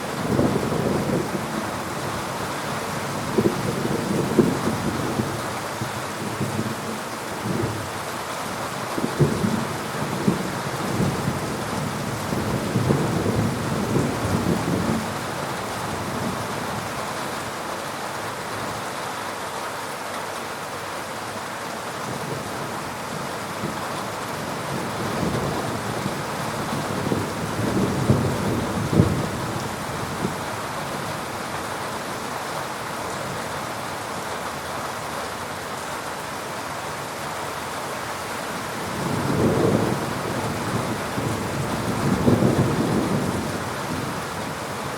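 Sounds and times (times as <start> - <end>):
heavy rain: 0.0 - 44.9
rolling thunder: 24.8 - 30.4, 38.9 - 44.4.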